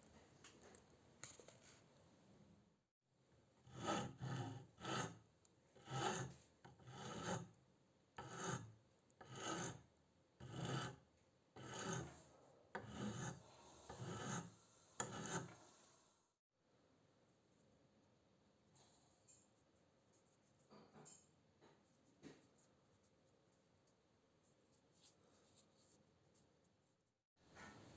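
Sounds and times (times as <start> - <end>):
rasping tool strokes on a surface: 3.6 - 7.6, 8.2 - 11.0, 11.6 - 15.8.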